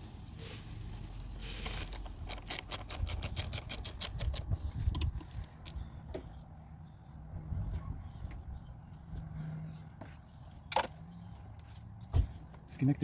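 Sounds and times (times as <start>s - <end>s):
metal tool clicks: 1.7s - 5.8s
socket ratchet clicking: 1.7s - 5.8s.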